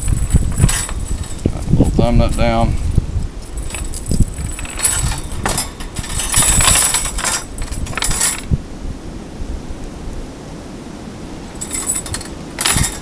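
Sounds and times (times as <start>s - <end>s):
metal chain jingling on grill: 0.0s - 1.4s, 3.5s - 8.5s, 11.6s - 13.0s.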